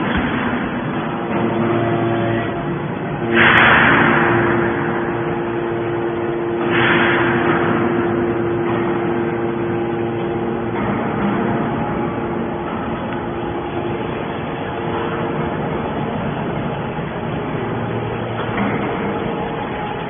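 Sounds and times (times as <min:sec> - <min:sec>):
hydraulic baler motor hum: 0:00.0 - 0:20.0.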